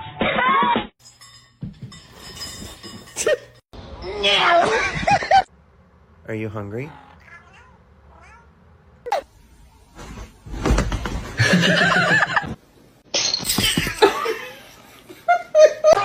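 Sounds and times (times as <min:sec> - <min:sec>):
cat yowling: 0:07.0 - 0:08.5.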